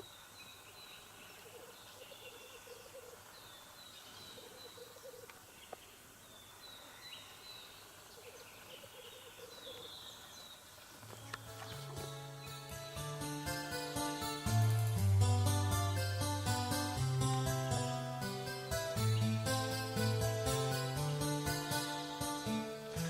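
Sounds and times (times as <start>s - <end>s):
distant grouse bubbling song: 0.0s - 12.8s.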